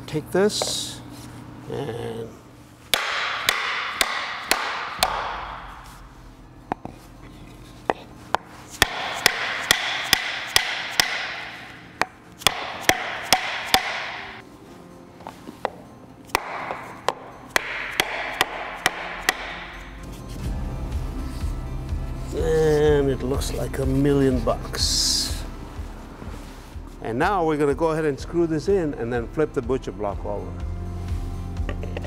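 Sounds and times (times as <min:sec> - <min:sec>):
hammer blows: 0:02.9 - 0:06.1, 0:08.4 - 0:14.4.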